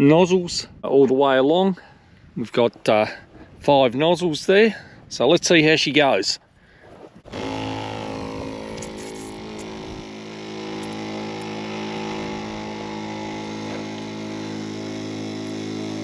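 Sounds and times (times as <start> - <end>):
quad bike engine idling: 7.3 - 16.0.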